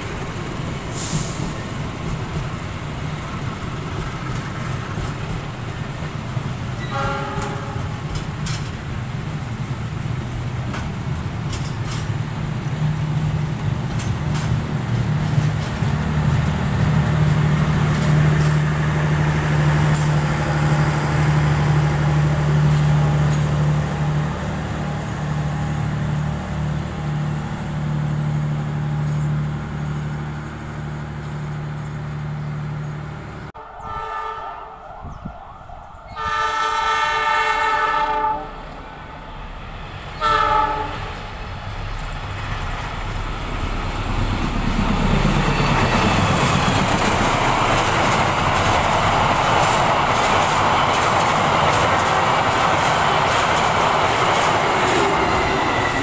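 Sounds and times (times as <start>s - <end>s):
passenger train rolling past: 0.0s - 56.0s
wheel and rail noise: 0.0s - 56.0s
locomotive air horn blasts: 6.8s - 8.1s, 33.6s - 34.8s, 36.2s - 38.6s, 40.2s - 41.1s.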